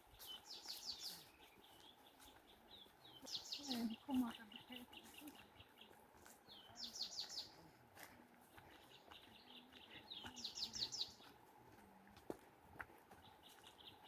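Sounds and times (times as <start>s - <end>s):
thin bird chirping: 0.2s - 5.9s, 6.5s - 7.5s.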